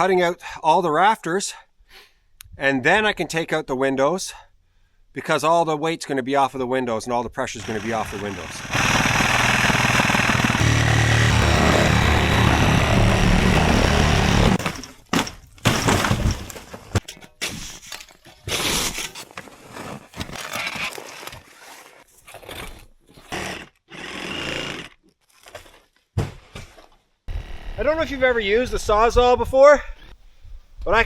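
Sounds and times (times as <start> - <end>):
reciprocating saw cutting: 7.6 - 14.6
knocks cracks and scrapes: 7.6 - 22.9.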